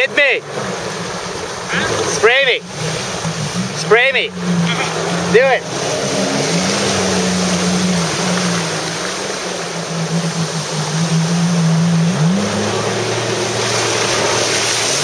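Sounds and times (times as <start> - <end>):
jet ski engine drone: 0.0 - 15.0
rushing water and spray: 0.0 - 15.0.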